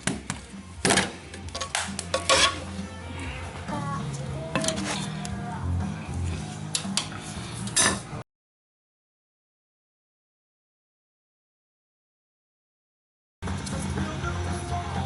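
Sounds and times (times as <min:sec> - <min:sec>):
background music: 0:00.0 - 0:08.2, 0:13.4 - 0:15.0
metal tools clinking: 0:01.5 - 0:02.6.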